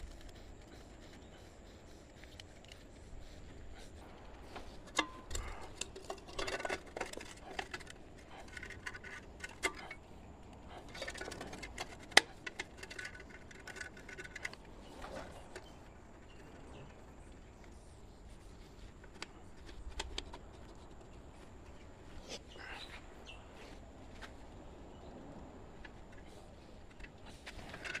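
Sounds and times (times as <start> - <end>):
rustling and scraping: 0.0 - 24.7, 25.7 - 28.0
tools clicking and tapping: 4.9 - 10.0.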